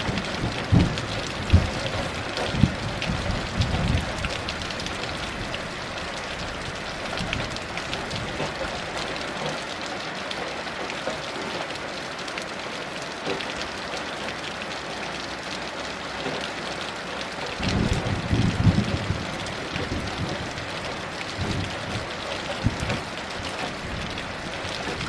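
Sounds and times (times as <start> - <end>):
thunder rumbling: 0.0 - 8.8, 17.5 - 25.0
heavy rain falling: 0.0 - 25.0.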